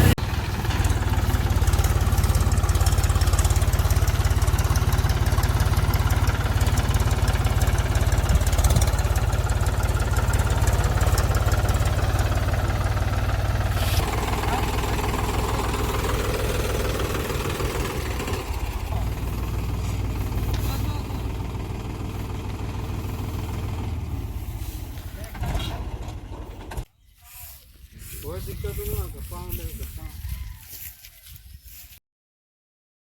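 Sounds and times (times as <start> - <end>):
tractor diesel engine running: 0.0 - 26.9.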